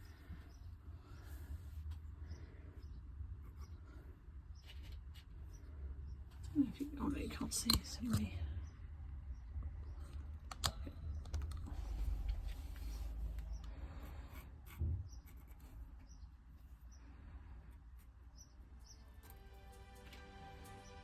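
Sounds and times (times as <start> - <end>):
low rumbling handling noise: 9.6 - 14.0
background music: 19.0 - 21.0.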